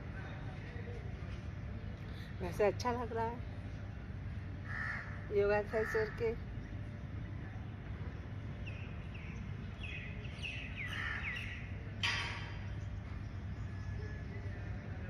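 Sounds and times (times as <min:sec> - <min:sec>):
small birds chirping: 0:05.9 - 0:15.0.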